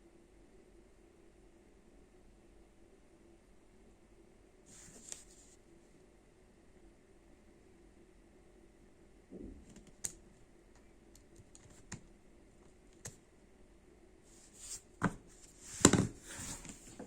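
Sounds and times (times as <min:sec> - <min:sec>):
rustling handling noise: 0:04.7 - 0:05.6, 0:14.3 - 0:17.0.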